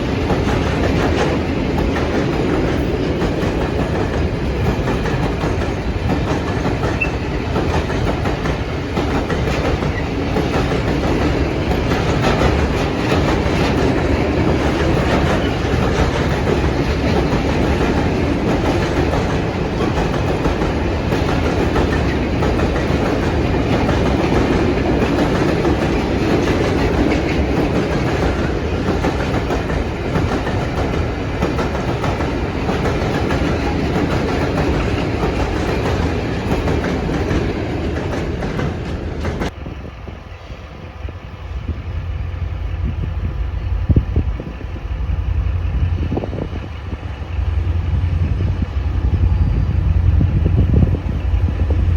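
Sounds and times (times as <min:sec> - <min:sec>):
train wheels clicking over rails: 0:00.0 - 0:39.8.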